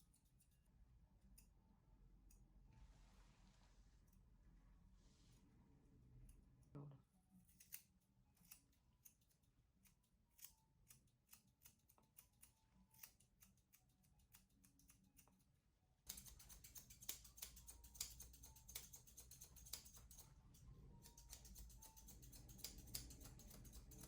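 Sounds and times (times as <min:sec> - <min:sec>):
scissors snipping: 0:07.6 - 0:15.4, 0:16.1 - 0:20.3, 0:21.0 - 0:24.0.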